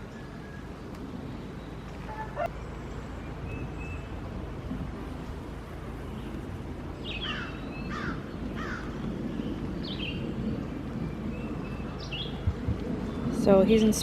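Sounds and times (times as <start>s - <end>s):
low outdoor background noise: 0.0s - 14.0s
bird calling harshly: 2.1s - 2.5s.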